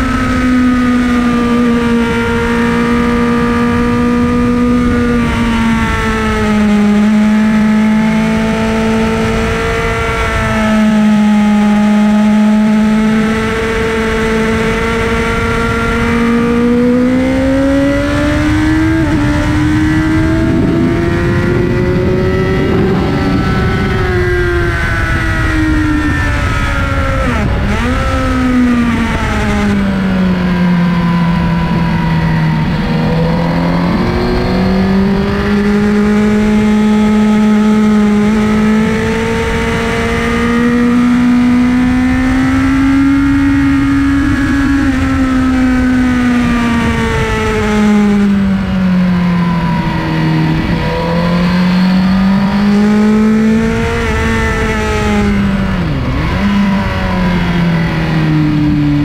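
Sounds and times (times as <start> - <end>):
motorcycle engine revving: 0.0 - 59.0
wind rushing: 17.7 - 36.3.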